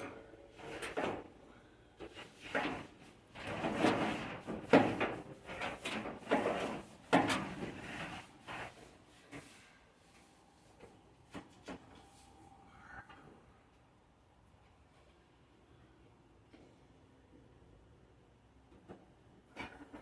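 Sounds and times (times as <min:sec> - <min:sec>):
hands scraping and rustling parts: 0:00.0 - 0:13.2.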